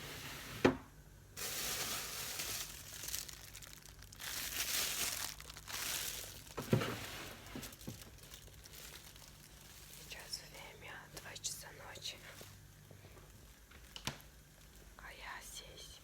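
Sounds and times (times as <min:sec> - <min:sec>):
crinkling and rustling: 0:01.4 - 0:11.3, 0:12.1 - 0:15.0.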